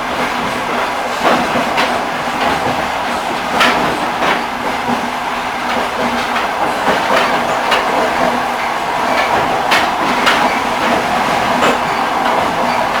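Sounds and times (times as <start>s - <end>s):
train wheels clattering on rails: 0.0s - 13.0s.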